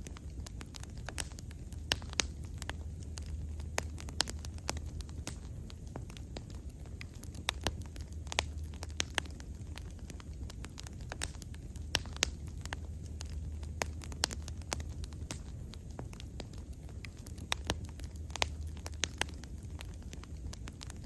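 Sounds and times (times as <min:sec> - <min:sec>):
bonfire crackling and popping: 0:00.0 - 0:21.0
low rumble of flames: 0:00.0 - 0:21.0.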